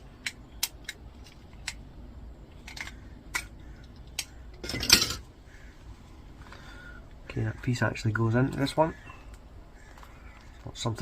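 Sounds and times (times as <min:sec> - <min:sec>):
metal parts clicking: 0:02.5 - 0:05.2.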